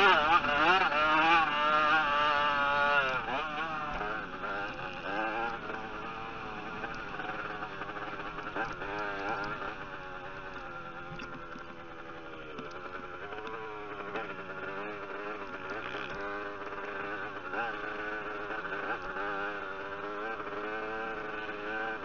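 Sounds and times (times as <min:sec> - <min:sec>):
motocross bike engine revving: 0:00.0 - 0:22.0.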